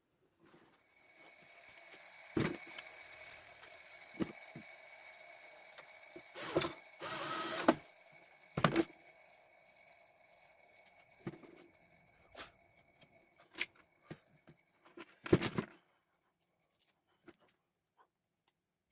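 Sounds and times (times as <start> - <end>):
electric drill running: 1.2 - 8.2.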